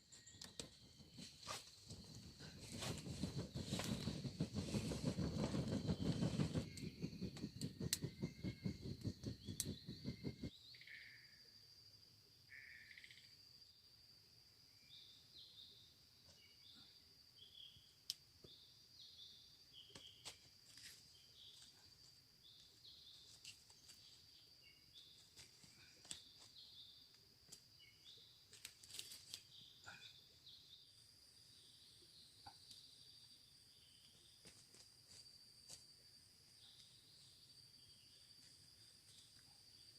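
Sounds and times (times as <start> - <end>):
high insect drone: 0.0 - 39.9
rapid low pulsing rumble: 1.9 - 10.5.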